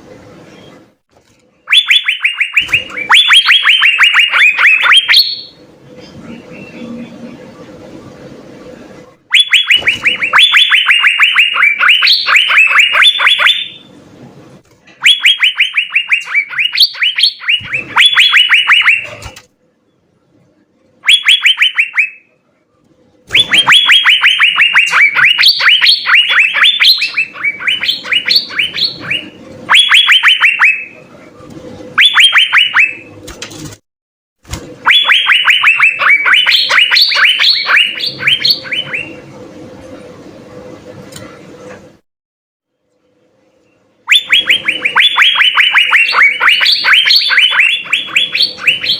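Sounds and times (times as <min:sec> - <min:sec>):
bird singing rapid clear notes: 0:01.7 - 0:05.6, 0:09.3 - 0:13.9, 0:15.0 - 0:19.3, 0:21.0 - 0:22.2, 0:23.3 - 0:31.0, 0:34.9 - 0:39.2, 0:44.1 - 0:48.9.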